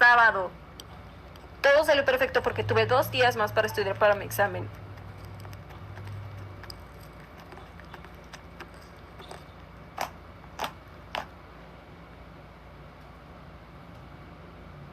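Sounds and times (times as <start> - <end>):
slime squishing: 3.9 - 10.2.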